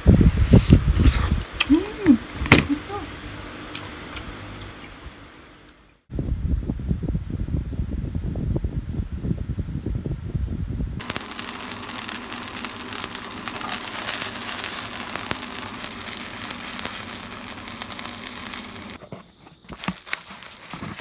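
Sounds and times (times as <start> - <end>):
oil sizzling in a pan: 11.0 - 19.0.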